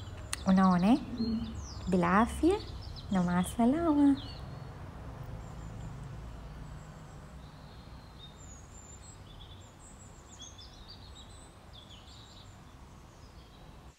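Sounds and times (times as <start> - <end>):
faint bird chirps: 0.0 - 4.4
low steady hum: 0.0 - 4.7.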